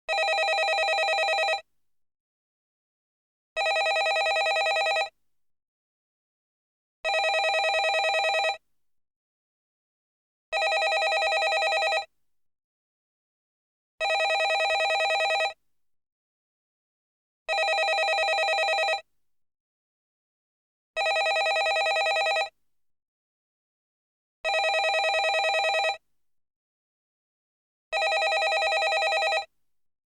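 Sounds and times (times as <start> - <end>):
telephone bell ringing: 0.1 - 1.6, 3.6 - 5.1, 7.1 - 8.6, 10.6 - 12.1, 14.0 - 15.6, 17.5 - 19.0, 21.0 - 22.5, 24.5 - 26.0, 28.0 - 29.5.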